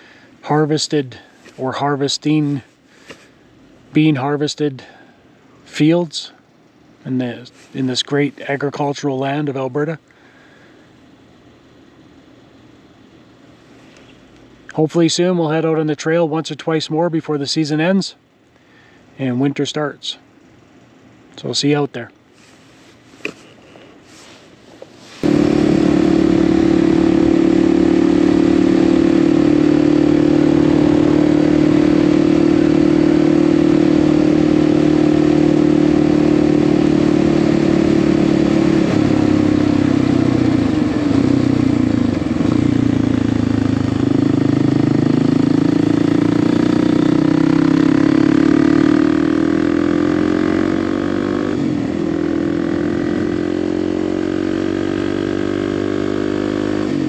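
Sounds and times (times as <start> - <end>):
motorcycle engine running: 25.2 - 57.0.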